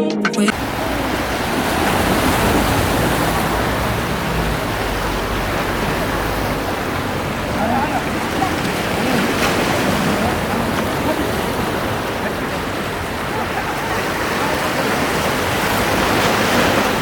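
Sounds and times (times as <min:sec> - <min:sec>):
sea waves washing on shore: 0:00.5 - 0:17.0.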